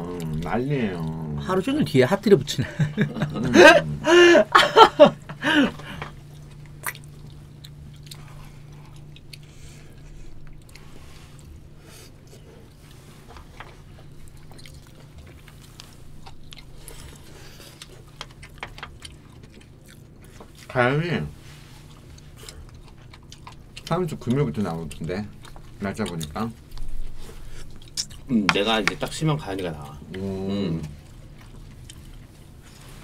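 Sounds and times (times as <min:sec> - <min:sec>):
low steady hum: 0:00.0 - 0:33.0
people chewing food: 0:00.0 - 0:33.0.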